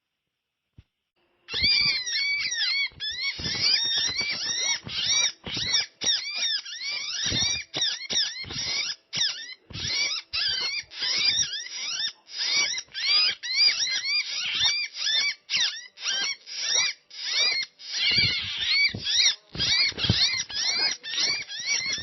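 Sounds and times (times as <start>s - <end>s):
bird rapid chirping: 1.5s - 22.0s.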